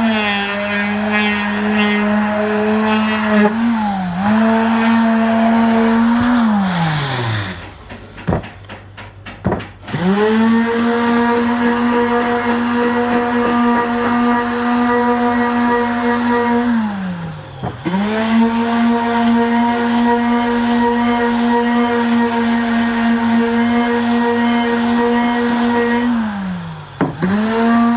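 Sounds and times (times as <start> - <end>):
power tool motor whining: 0.0 - 8.9, 9.8 - 27.9
knocks: 6.0 - 10.0.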